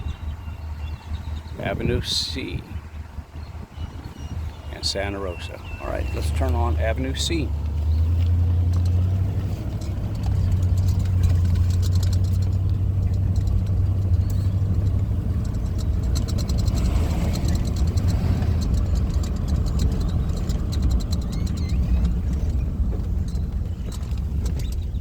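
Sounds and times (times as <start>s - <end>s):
car engine and road hum: 0.0s - 25.0s
light ticks and crackles: 5.9s - 25.0s.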